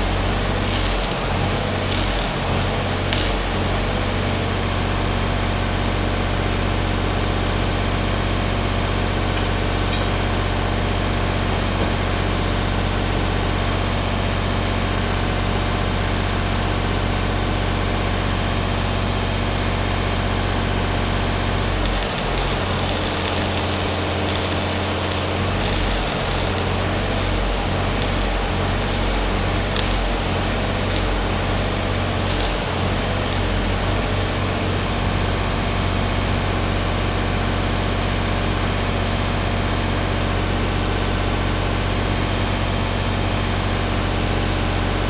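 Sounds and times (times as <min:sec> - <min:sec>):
welder hissing: 0:00.0 - 0:04.4, 0:21.2 - 0:35.3
low electrical hum: 0:00.0 - 0:05.5, 0:18.8 - 0:40.4.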